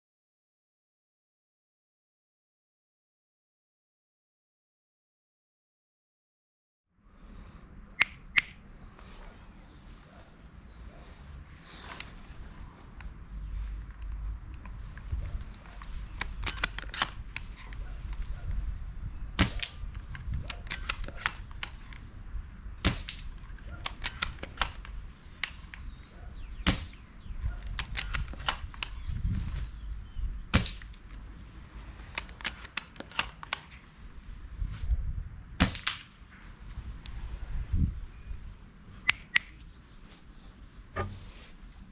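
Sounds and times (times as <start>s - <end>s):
rifle bolt clicking: 16.2s - 17.5s, 20.5s - 21.8s, 23.9s - 25.6s, 27.7s - 29.0s, 32.2s - 33.7s
airsoft rifle shots: 19.4s - 19.8s, 22.8s - 23.3s, 23.9s - 24.8s, 26.6s - 27.0s.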